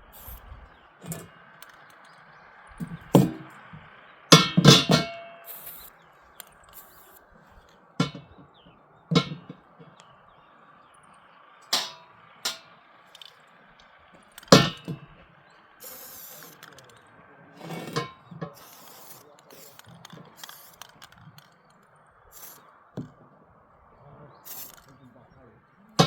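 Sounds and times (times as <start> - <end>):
short hiss: 5.4 - 5.9, 15.8 - 16.9, 24.5 - 24.9
metal pieces clanking: 11.7 - 13.4, 14.2 - 15.2, 15.8 - 17.0, 17.6 - 21.8, 24.5 - 24.9.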